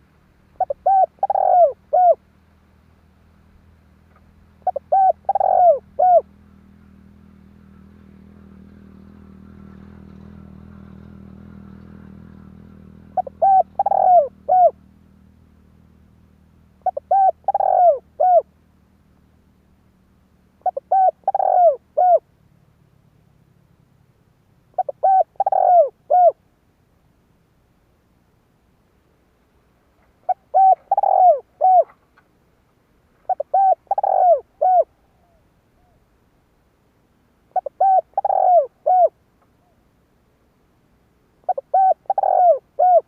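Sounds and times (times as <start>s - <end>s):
dove cooing: 0.5s - 2.3s, 4.6s - 15.0s, 16.7s - 18.6s, 20.6s - 22.3s, 24.7s - 26.4s, 30.2s - 32.0s, 33.2s - 36.1s, 37.5s - 39.8s, 41.4s - 43.0s.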